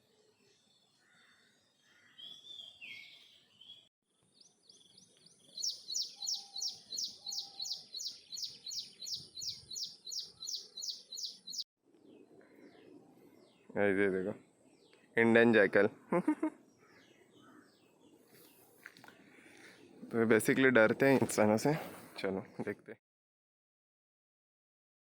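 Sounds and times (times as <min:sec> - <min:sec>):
bird singing high notes: 0:05.6 - 0:11.6
short bird calls: 0:05.6 - 0:11.6.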